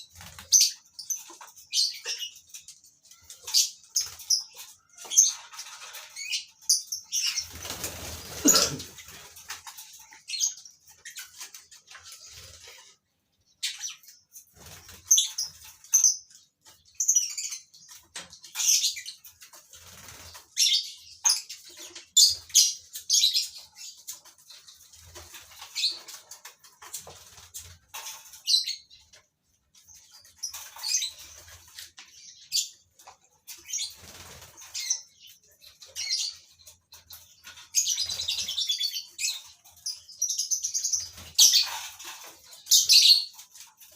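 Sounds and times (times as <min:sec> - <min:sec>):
wings flapping: 0:07.4 - 0:09.6.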